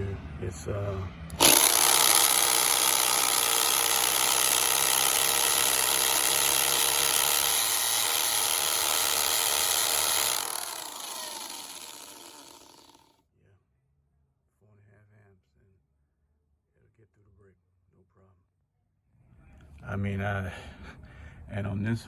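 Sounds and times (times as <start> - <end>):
hammer drill drilling into brick: 1.3 - 13.1.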